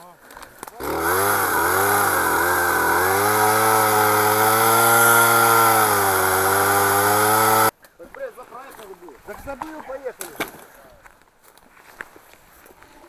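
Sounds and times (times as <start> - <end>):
small two-stroke engine running: 0.8 - 7.7.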